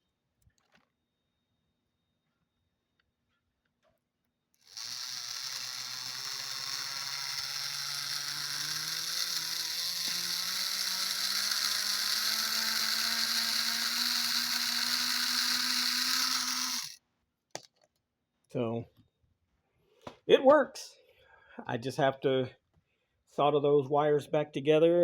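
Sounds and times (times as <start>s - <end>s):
model locomotive motor whir: 4.6s - 17.0s.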